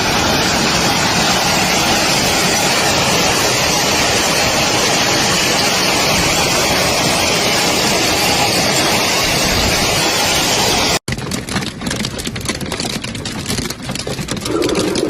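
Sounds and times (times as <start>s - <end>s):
hail roaring: 0.0s - 11.0s, 14.3s - 15.0s
hailstones clattering on hard surfaces: 10.6s - 15.0s.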